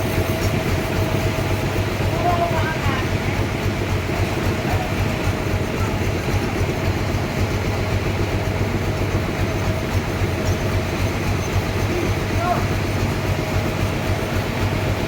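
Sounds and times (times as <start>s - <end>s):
sawmill machinery rumble: 0.0s - 15.0s
faint machine whine: 4.4s - 14.6s.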